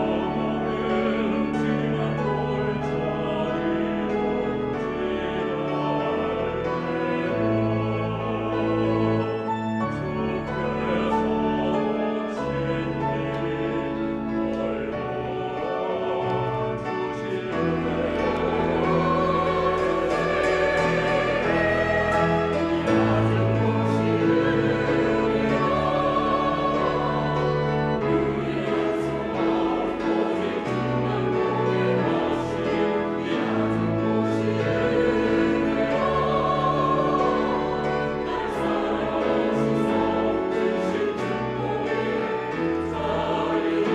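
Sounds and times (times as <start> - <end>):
church choir singing: 0.0 - 43.9
organ: 0.0 - 43.9
piano accompaniment: 0.0 - 43.9.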